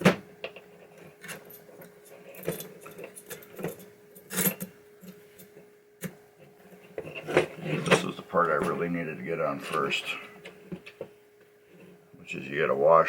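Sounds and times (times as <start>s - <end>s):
faint steady hum: 0.0s - 13.0s
small metal parts clicking and rattling: 0.5s - 4.7s.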